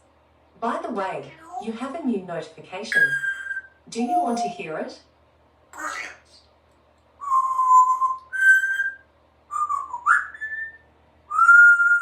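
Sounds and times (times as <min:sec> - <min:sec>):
parrot whistling: 0:02.9 - 0:04.6, 0:07.2 - 0:12.0.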